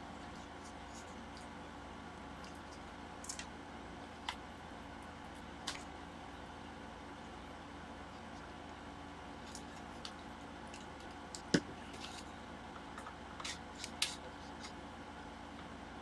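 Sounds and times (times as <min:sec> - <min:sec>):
faint steady hum: 0:00.0 - 0:16.0
tools clicking and scraping: 0:10.7 - 0:12.3.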